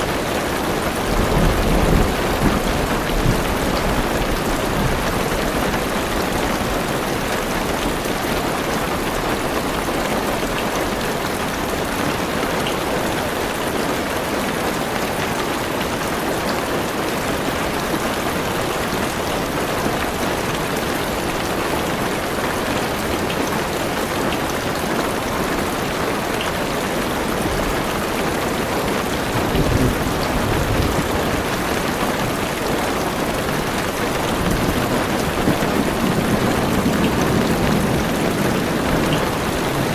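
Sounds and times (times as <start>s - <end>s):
heavy rain on car roof: 0.0s - 39.9s
distant thunder rumble: 29.2s - 32.8s, 33.5s - 39.9s.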